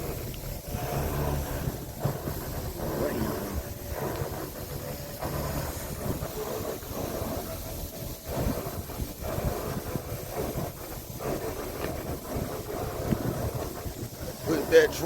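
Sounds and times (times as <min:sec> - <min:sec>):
truck engine rumbling: 0:00.0 - 0:15.0.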